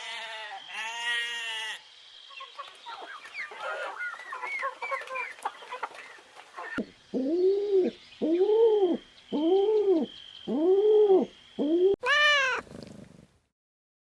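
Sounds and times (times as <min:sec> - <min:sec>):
animal bleat: 0:00.0 - 0:01.8, 0:12.0 - 0:12.6
hens clucking: 0:02.3 - 0:06.9.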